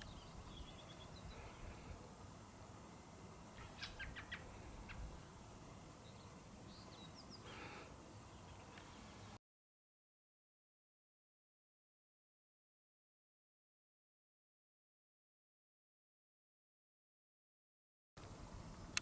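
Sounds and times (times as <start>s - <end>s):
quiet hiss: 0.0s - 9.4s, 18.2s - 19.0s
faint bird chirps: 3.6s - 5.1s.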